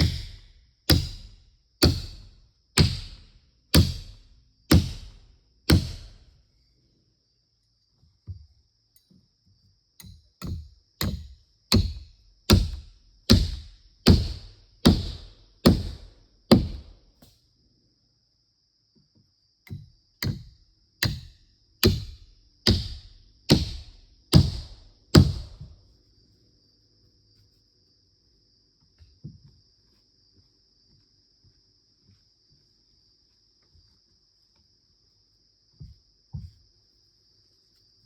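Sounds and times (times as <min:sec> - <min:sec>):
heavy blows on wood: 0:00.0 - 0:06.2, 0:10.4 - 0:17.0, 0:21.0 - 0:25.8
crickets droning: 0:00.0 - 0:38.0.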